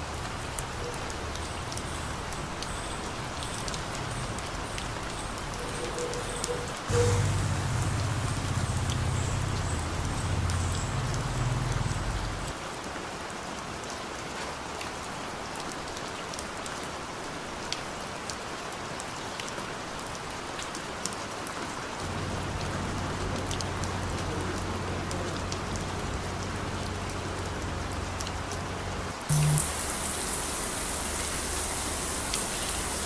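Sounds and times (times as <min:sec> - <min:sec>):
raindrops ticking: 0:00.0 - 0:12.6, 0:22.0 - 0:33.0
steady rain falling: 0:00.0 - 0:33.0
low steady hum: 0:06.9 - 0:12.5, 0:25.2 - 0:33.0.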